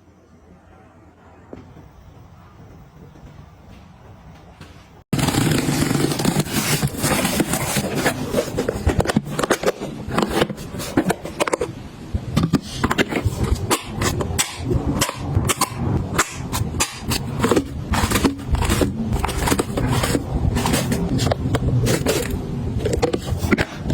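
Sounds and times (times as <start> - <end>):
small items clicking and clattering: 12.4 - 23.9.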